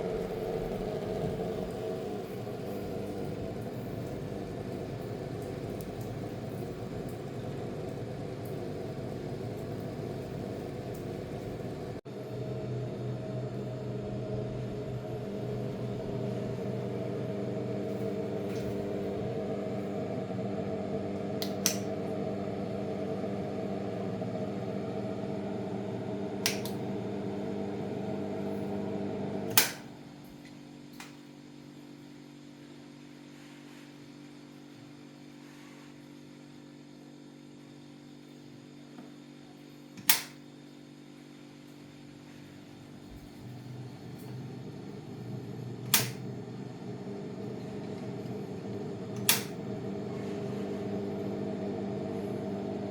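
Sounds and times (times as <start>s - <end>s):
electric motor hum: 0.0s - 30.0s, 42.3s - 52.9s.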